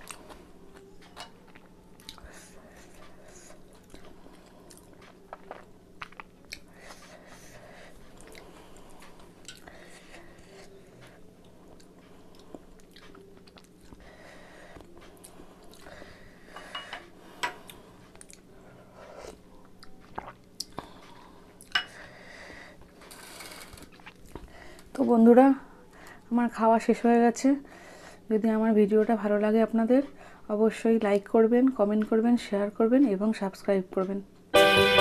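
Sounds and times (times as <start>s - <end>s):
person chewing: 0.0s - 16.2s, 17.6s - 18.5s, 19.1s - 21.8s, 23.8s - 24.5s.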